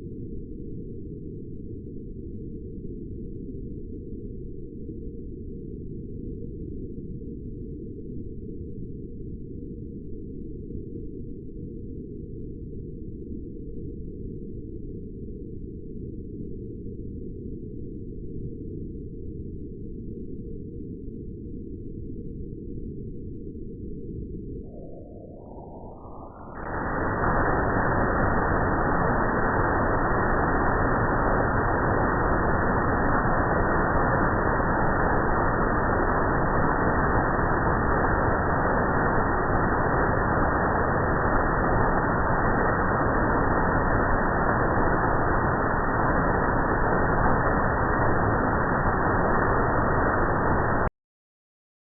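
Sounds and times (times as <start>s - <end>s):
low muffled waterfall rushing: 24.7s - 50.9s.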